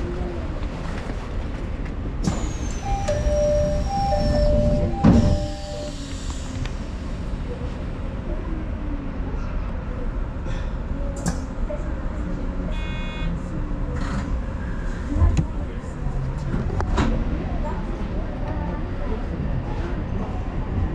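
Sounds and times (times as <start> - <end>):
train wheels rumbling on rails: 0.0 - 8.6.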